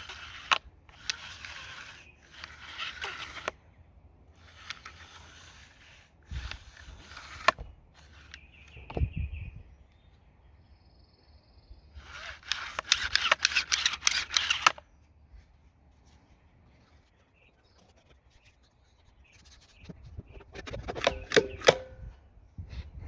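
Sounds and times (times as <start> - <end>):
quick metallic clicks and rattles: 12.0 - 14.8, 20.4 - 22.0
scraping and handling noises: 19.7 - 22.1.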